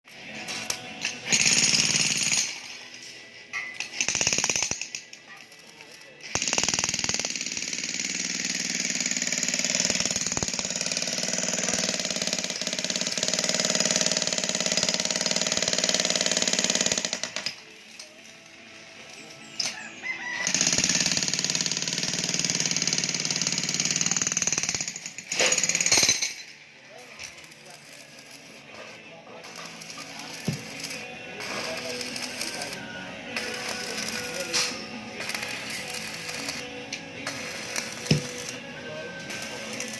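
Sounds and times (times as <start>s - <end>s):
jackhammer hammering into wood: 1.2s - 2.6s, 6.4s - 17.6s, 20.5s - 26.3s, 29.6s - 36.7s, 37.3s - 38.6s.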